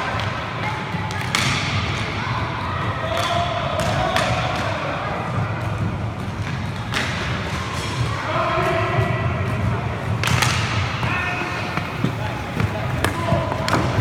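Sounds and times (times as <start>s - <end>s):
hockey sticks and puck clacking: 0.1s - 2.2s, 3.0s - 4.9s, 5.6s - 14.0s
players calling out: 10.4s - 14.0s.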